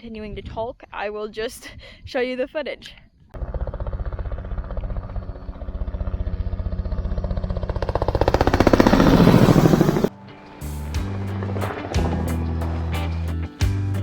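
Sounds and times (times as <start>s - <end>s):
helicopter rotor beating: 3.4s - 13.8s.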